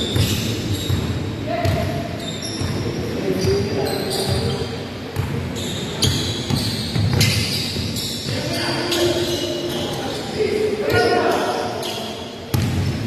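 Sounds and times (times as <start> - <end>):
basketball bouncing on court: 0.0 - 9.3, 12.5 - 13.0
sneakers squeaking: 0.0 - 13.0.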